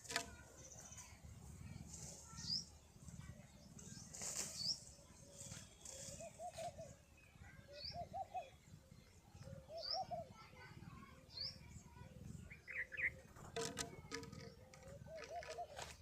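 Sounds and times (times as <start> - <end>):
small bird chirping: 0.0 - 16.0
pigeons cooing: 5.8 - 7.0, 13.0 - 16.0.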